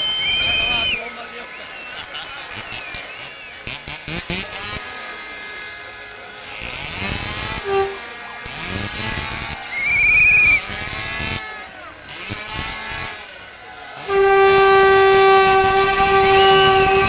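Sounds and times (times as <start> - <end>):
crowd noise: 0.0 - 17.0
motocross bikes revving: 2.4 - 17.0
high-pitched horn blast: 7.4 - 8.1, 14.0 - 17.0
short low horn toot: 7.6 - 8.0, 14.0 - 17.0.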